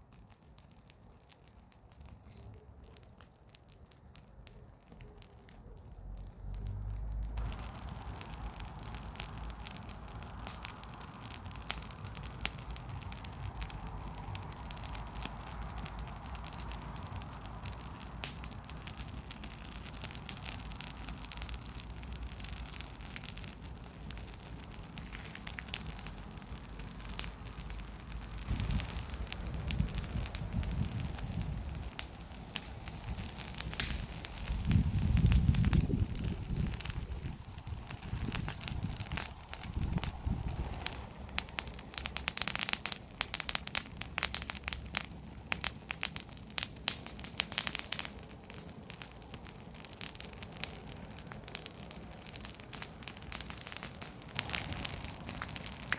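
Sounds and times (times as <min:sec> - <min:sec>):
bonfire crackling and popping: 0:00.0 - 0:55.9.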